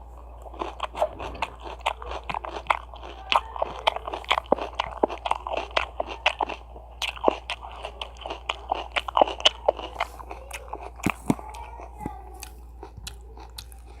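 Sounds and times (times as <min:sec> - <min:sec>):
crunchy chewing of food: 0:00.0 - 0:14.0.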